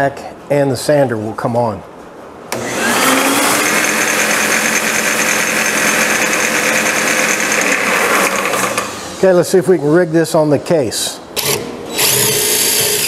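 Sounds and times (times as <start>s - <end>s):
vacuum and sander motors whining: 2.5s - 9.2s.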